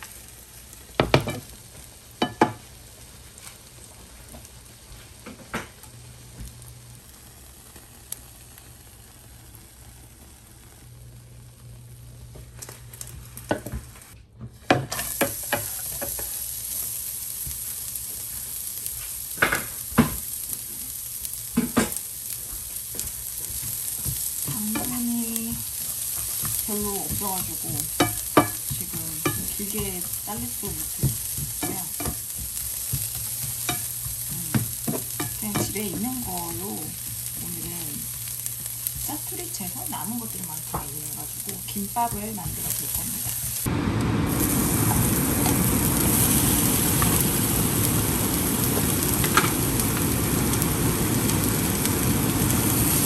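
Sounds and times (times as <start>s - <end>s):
food sizzling in frying pan: 0.0s - 53.0s
utensil scraping pan: 24.5s - 38.2s.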